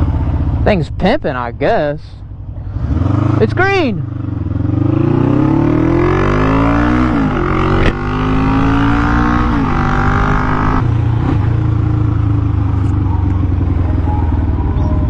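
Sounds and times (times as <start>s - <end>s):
motorcycle engine accelerating: 0.0s - 1.0s, 2.3s - 15.0s
sharp click: 7.8s - 8.0s.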